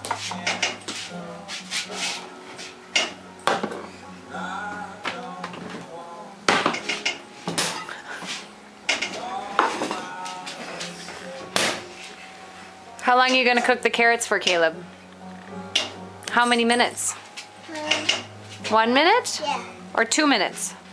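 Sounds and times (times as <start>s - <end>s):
pots and utensils clattering: 0.0s - 1.0s, 2.0s - 3.9s, 6.5s - 12.1s, 15.7s - 18.8s.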